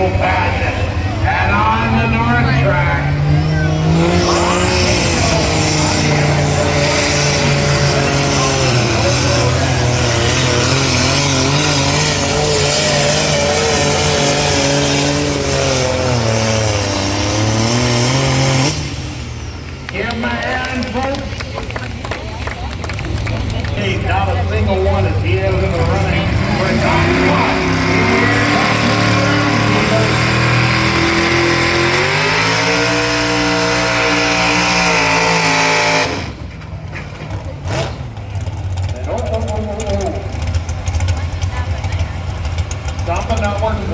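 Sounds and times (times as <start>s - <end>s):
tractor engine at high revs: 0.0s - 43.9s.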